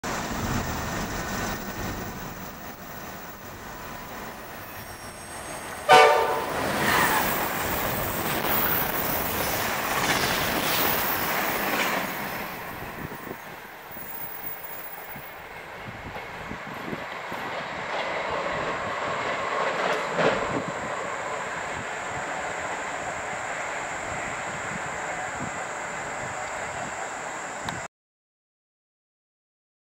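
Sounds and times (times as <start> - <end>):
passenger train rushing past: 0.0 - 27.9
train horn blast: 5.8 - 7.2.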